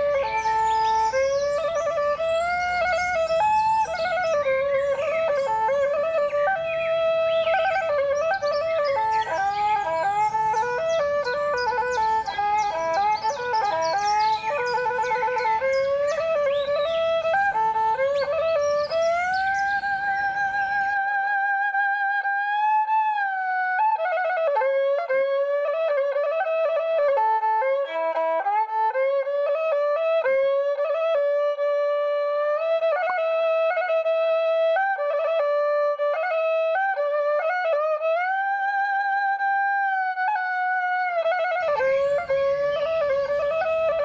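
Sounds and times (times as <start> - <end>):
slow solo instrumental melody: 0.0 - 6.5, 8.4 - 21.0, 41.6 - 44.0
nature ambience hiss: 0.0 - 21.0, 41.6 - 44.0.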